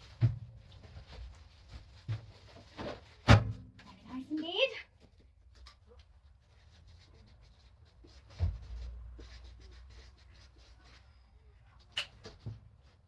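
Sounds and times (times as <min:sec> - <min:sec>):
items rustling and clicking: 0:00.0 - 0:06.4.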